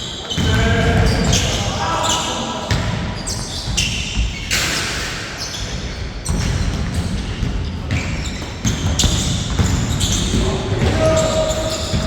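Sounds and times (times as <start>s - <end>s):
basketball bouncing: 6.2s - 12.0s.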